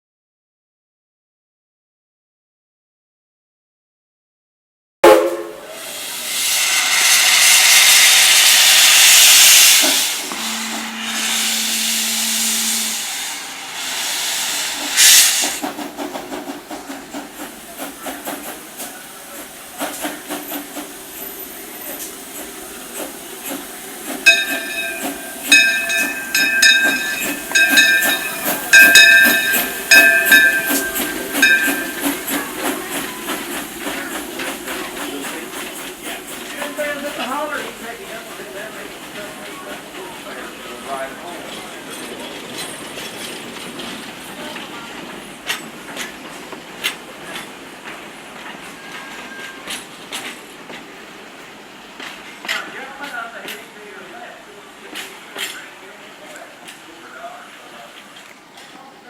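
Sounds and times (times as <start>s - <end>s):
steam whistle blasts: 5.0s - 15.6s, 24.3s - 33.4s
steam locomotive chuffing: 5.0s - 57.7s
steam venting hiss: 5.6s - 48.8s.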